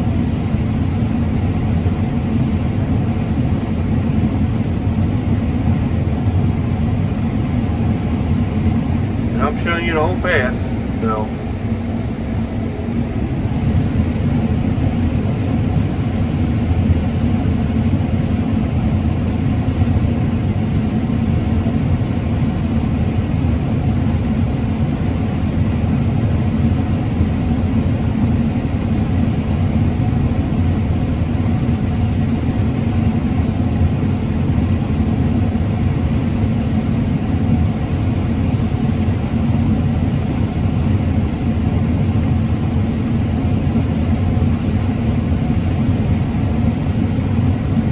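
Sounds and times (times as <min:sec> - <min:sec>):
combine harvester droning: 0:07.2 - 0:16.2.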